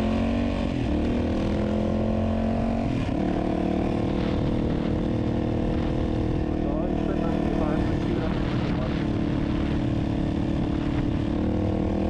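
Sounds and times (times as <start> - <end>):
off-road motorcycle engine: 0.0 - 12.0.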